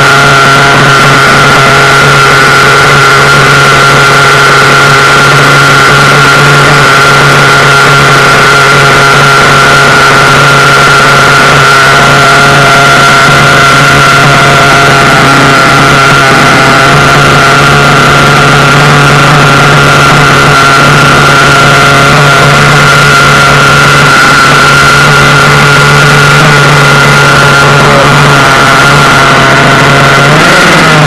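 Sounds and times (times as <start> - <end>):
small nitro engine idling: 0.0 - 31.0.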